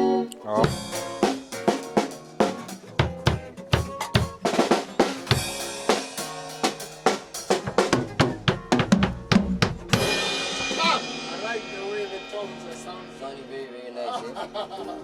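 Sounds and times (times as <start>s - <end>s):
held pitched instrument notes: 0.0s - 1.6s
drum kit playing: 0.0s - 13.6s.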